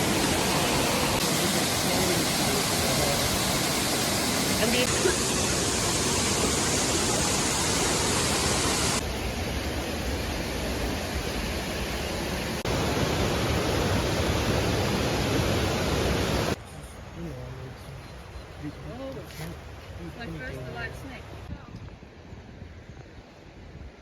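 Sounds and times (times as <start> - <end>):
waterfall rushing: 0.0 - 16.6.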